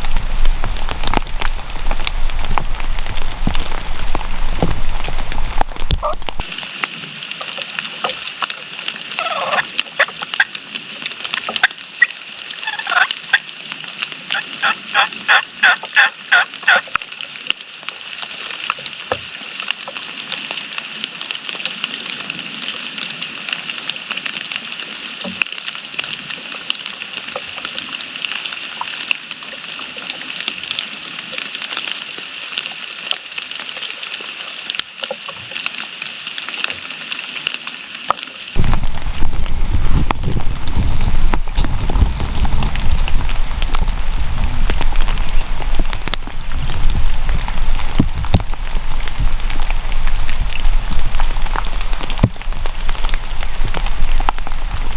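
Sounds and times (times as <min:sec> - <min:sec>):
rain patter: 0:00.0 - 0:54.9
turkey calling: 0:12.6 - 0:13.1.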